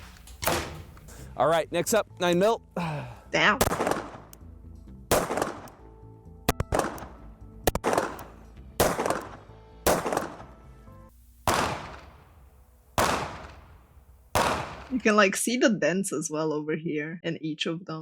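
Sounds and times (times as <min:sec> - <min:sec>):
background music: 0:00.0 - 0:18.0
pistol shots: 0:00.4 - 0:00.9, 0:03.6 - 0:04.4, 0:05.1 - 0:05.9, 0:06.5 - 0:10.6, 0:11.4 - 0:15.0.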